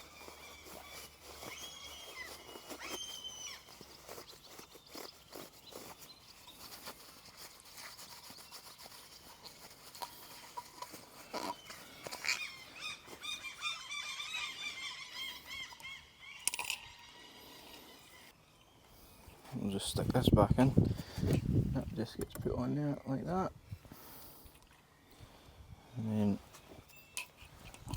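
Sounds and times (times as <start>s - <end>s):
birds chirping: 0.0s - 27.9s
small parts clicking and knocking: 16.4s - 16.9s.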